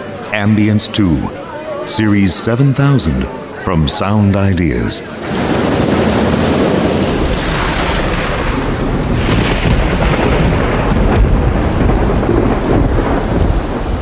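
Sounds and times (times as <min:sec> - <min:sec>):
steady rain: 0:04.6 - 0:14.0
thunder rumbling: 0:05.1 - 0:14.0.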